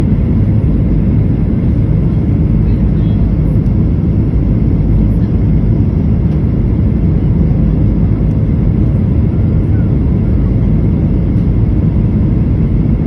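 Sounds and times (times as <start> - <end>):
airliner engine rumble in flight: 0.0 - 13.0.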